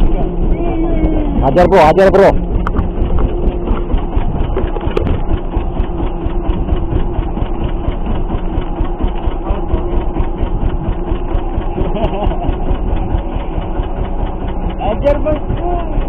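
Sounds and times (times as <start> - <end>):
boat engine ticking hum: 0.0 - 16.0.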